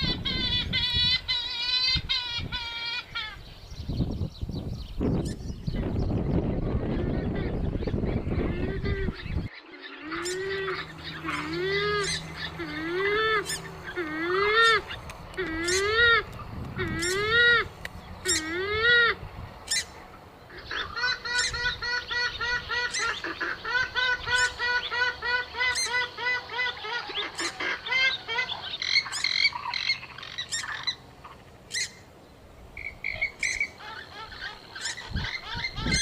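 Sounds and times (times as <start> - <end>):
swamphen calls: 6.9 - 32.1, 32.7 - 36.0.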